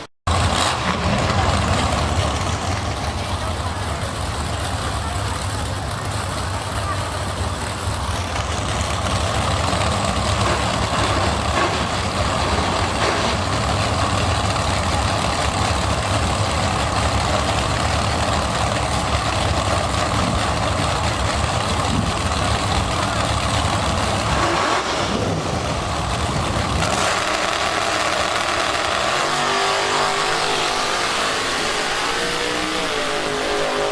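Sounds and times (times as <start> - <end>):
race vehicle engines rumbling: 0.0 - 33.9.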